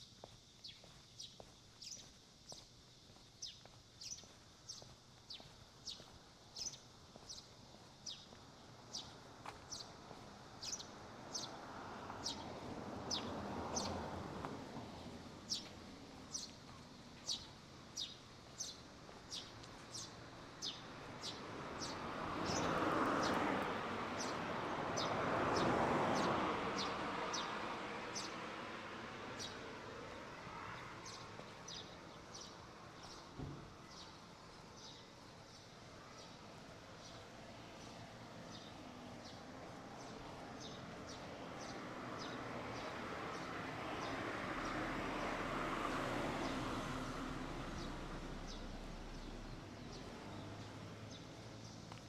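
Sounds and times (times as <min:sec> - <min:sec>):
bird chirping: 0:00.6 - 0:02.7, 0:03.3 - 0:10.0, 0:10.6 - 0:11.6, 0:15.0 - 0:23.4
passing vehicle: 0:06.6 - 0:34.9, 0:35.8 - 0:52.0.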